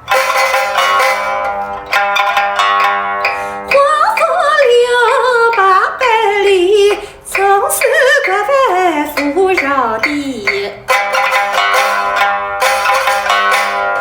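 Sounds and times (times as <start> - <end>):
pipa plucked notes: 0.0 - 14.0
person singing with vibrato: 3.3 - 11.0.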